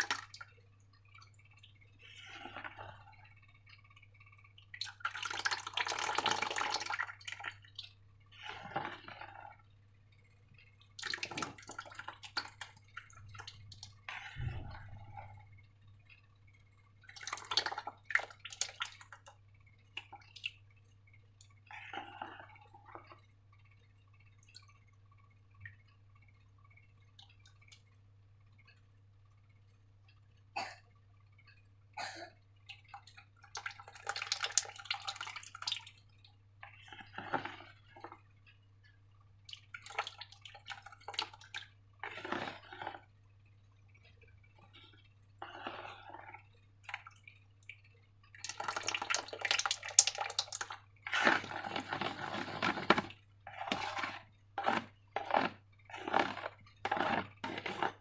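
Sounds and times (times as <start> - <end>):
slime squelching by hand: 4.4 - 9.6, 10.8 - 15.6, 32.7 - 38.2, 39.4 - 43.1, 43.9 - 58.0.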